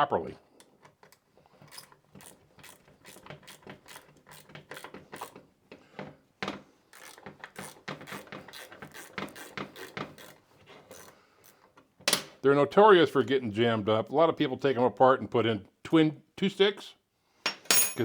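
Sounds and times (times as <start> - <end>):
metal parts clicking and rattling: 17.6 - 18.0.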